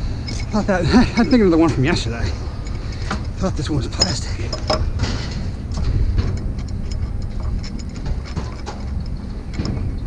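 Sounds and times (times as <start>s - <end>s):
low engine rumble: 0.0s - 10.0s
scrap metal clinking: 0.1s - 10.0s.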